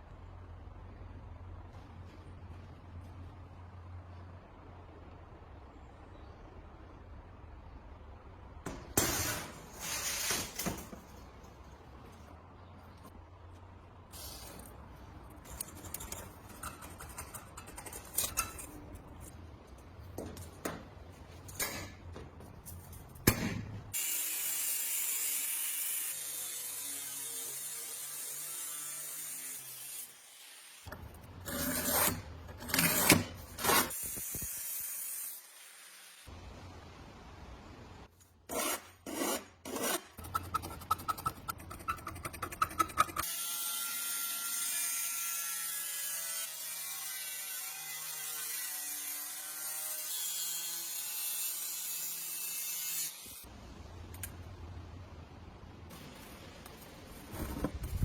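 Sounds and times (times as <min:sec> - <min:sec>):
hand tool scraping: 0:09.0 - 0:10.9, 0:15.4 - 0:19.4, 0:31.2 - 0:34.1, 0:38.5 - 0:43.3.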